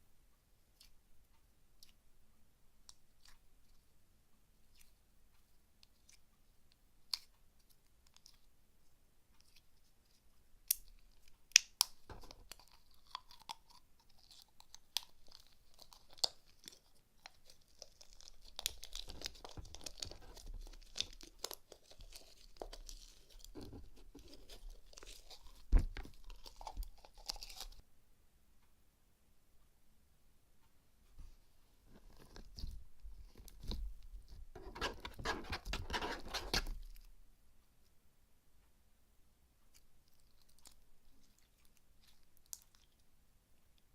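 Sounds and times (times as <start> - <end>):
slime squishing: 9.4 - 27.8, 31.9 - 37.1, 39.7 - 43.1.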